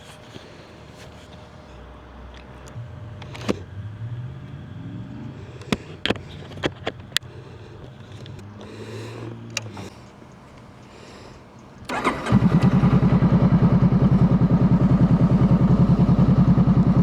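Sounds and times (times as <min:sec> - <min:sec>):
motorcycle engine idling: 0:02.6 - 0:17.0.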